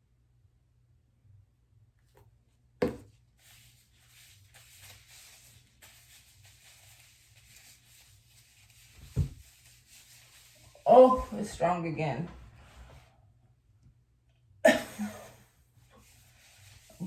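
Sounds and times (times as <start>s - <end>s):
dull thump: 9.0s - 9.5s.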